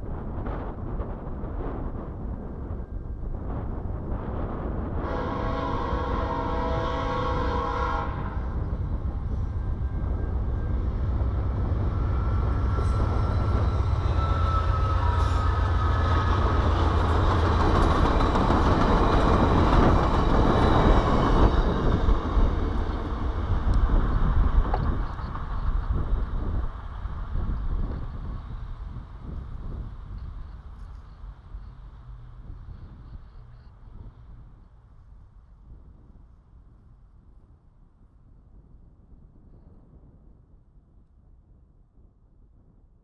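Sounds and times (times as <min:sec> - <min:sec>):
train cars rumbling on rails: 0:00.0 - 0:36.1
multi-note locomotive horn: 0:05.0 - 0:08.7, 0:11.9 - 0:16.7.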